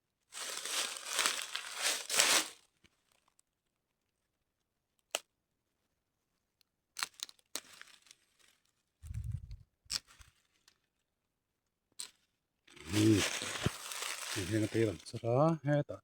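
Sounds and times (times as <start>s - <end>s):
paper crinkling and tearing: 0.4s - 2.6s, 12.8s - 15.2s
dull low thud: 9.0s - 9.6s.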